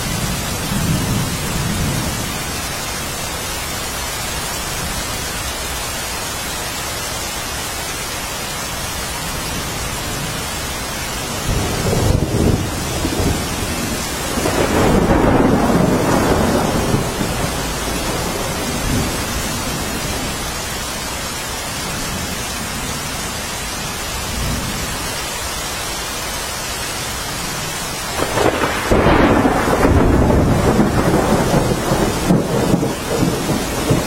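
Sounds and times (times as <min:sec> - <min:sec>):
heavy rain: 0:00.0 - 0:34.0
rolling thunder: 0:11.2 - 0:20.7, 0:28.1 - 0:34.0.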